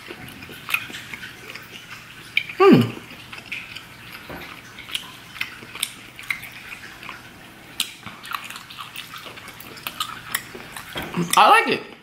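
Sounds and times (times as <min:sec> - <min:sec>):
wet chewing mouth clicks: 0:00.0 - 0:12.0.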